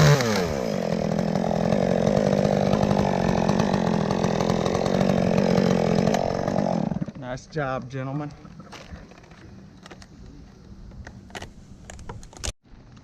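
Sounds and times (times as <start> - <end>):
chainsaw idling: 0.0 - 8.2.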